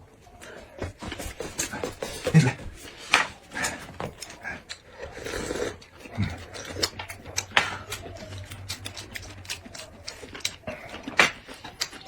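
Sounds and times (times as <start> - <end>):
chewing and mouth smacks: 3.6 - 12.0.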